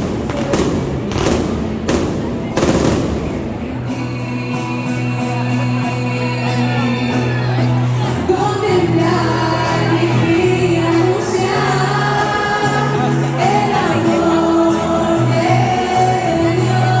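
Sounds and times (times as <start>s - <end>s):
voices singing religious song: 3.5s - 17.0s.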